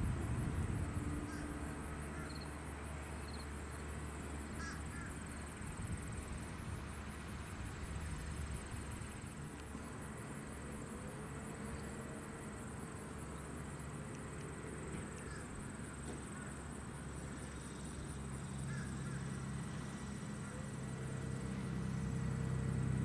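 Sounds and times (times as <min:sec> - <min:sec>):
distant light aircraft drone: 0:00.0 - 0:23.0
crow-like caws: 0:01.3 - 0:01.5, 0:02.2 - 0:02.4, 0:04.6 - 0:05.2, 0:15.2 - 0:15.5, 0:18.7 - 0:19.4.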